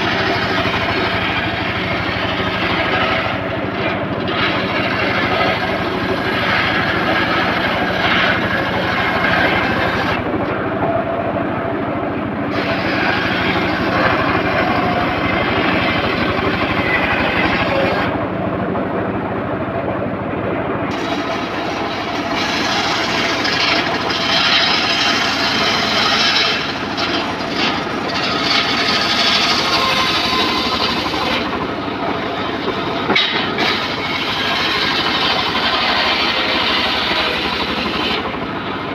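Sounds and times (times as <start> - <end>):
circular sawmill sawing timber: 0.0 - 18.4, 20.8 - 38.9.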